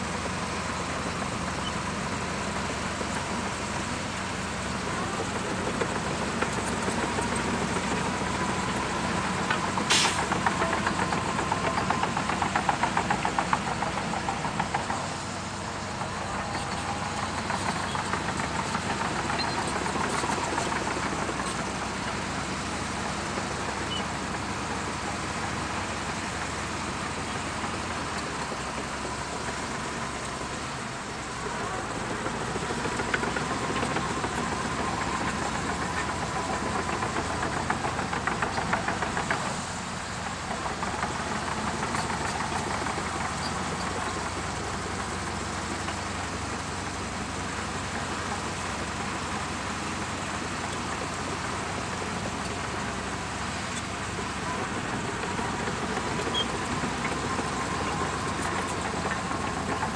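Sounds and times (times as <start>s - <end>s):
bulldozer diesel engine pulsing: 0.0s - 59.9s.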